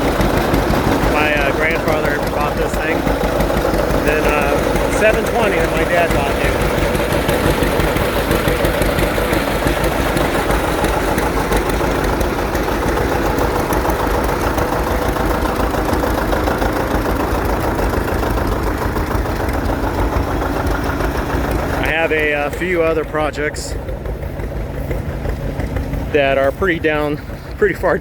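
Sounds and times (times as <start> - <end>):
tractor engine idling: 0.0 - 28.0.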